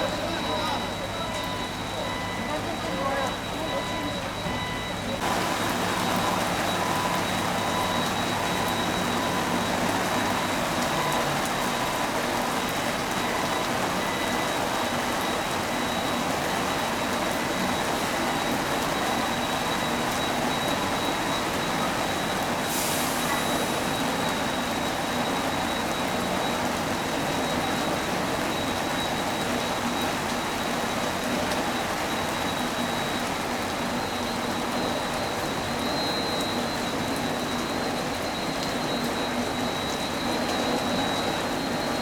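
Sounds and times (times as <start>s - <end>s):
fire hose water spraying: 5.2s - 42.0s.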